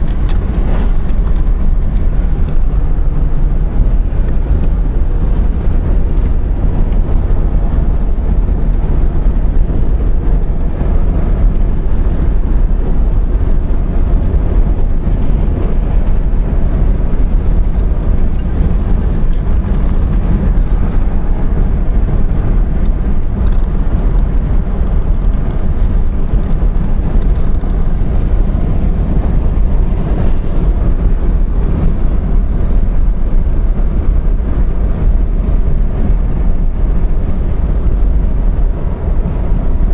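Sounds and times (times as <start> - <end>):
car road and engine noise: 0.0 - 39.9
wind on microphone: 0.0 - 39.9.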